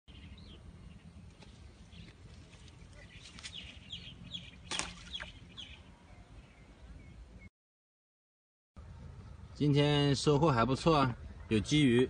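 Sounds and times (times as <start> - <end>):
birds chirping: 0.1 - 7.5
low steady rumble: 8.8 - 11.5.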